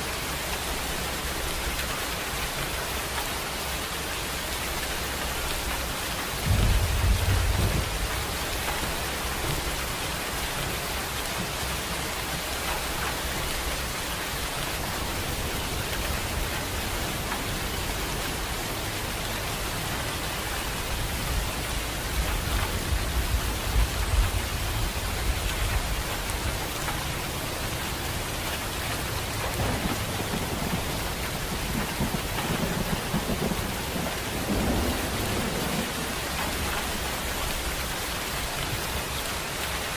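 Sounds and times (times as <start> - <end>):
steady rain: 0.0 - 39.9
thunder rumbling: 6.4 - 26.6, 29.2 - 37.8.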